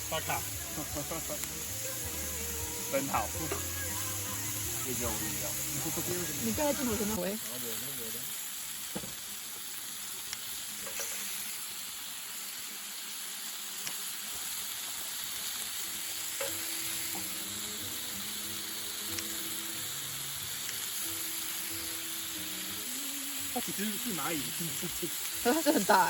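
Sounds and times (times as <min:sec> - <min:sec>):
faint background music: 0:00.0 - 0:08.3, 0:15.8 - 0:26.0
sizzling hiss: 0:00.0 - 0:26.0.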